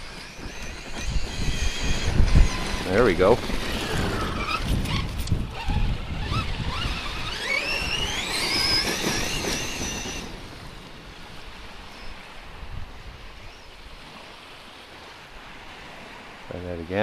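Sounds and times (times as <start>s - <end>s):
electric motor whining: 0.0s - 10.4s
wind buffeting microphone: 0.0s - 14.1s.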